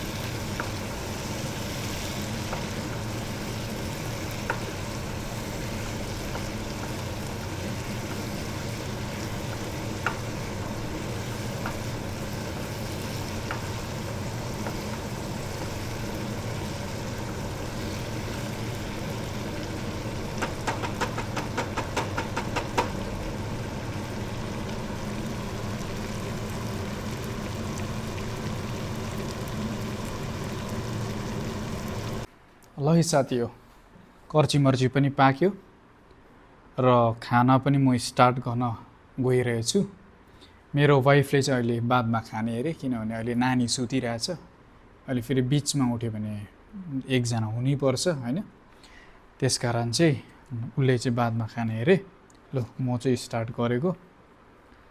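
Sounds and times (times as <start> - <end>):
meat sizzling in a pan: 0.0 - 32.3
spoon knocking against pan: 20.4 - 23.0.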